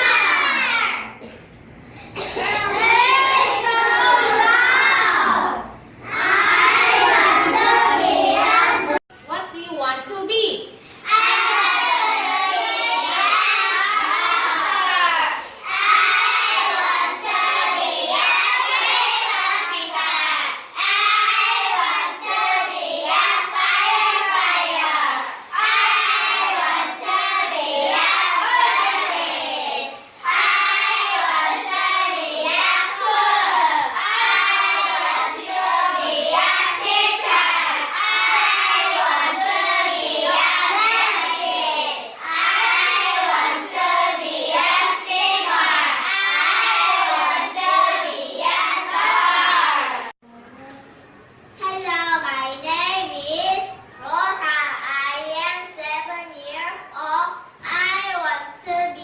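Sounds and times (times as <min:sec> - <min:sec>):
children singing: 0:00.0 - 0:01.3, 0:02.2 - 0:09.0, 0:11.1 - 0:50.2.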